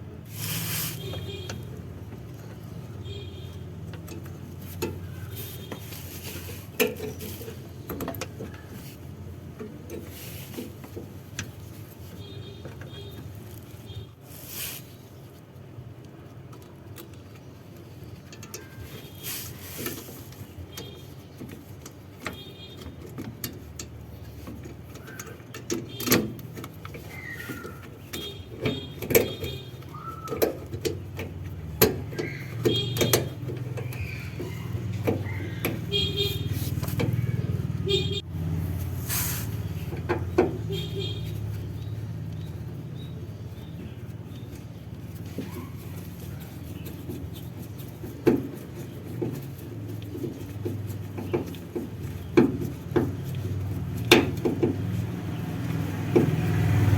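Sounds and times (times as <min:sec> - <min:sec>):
sharp clicks and knocks: 0:01.0 - 0:14.0, 0:16.0 - 0:38.3, 0:39.6 - 0:56.9
car engine running: 0:31.0 - 0:56.9.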